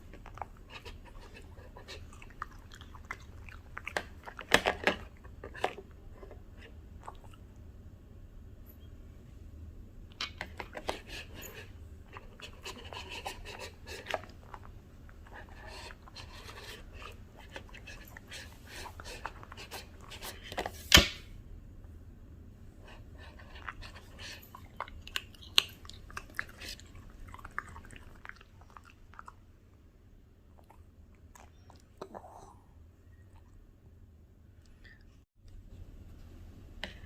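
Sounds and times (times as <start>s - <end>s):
dog crunching and chewing: 0.0s - 7.4s, 10.3s - 20.6s, 23.2s - 29.5s.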